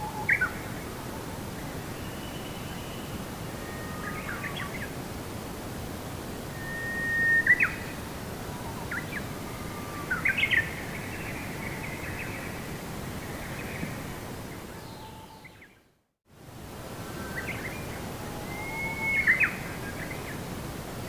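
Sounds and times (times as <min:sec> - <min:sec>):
birds chirping and whistling: 0:18.5 - 0:19.6.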